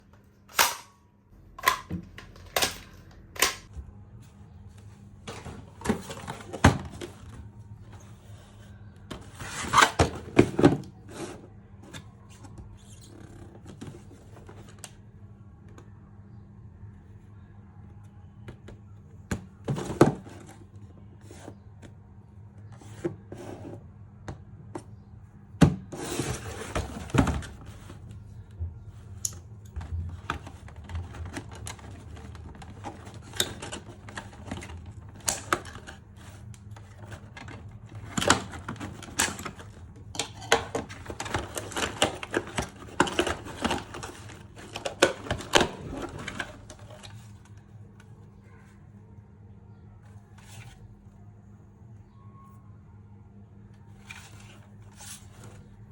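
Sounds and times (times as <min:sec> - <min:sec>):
faint low hum: 0:00.0 - 0:55.9
cardboard and plastic packaging handling: 0:04.1 - 0:15.0, 0:25.6 - 0:48.2, 0:53.9 - 0:55.9.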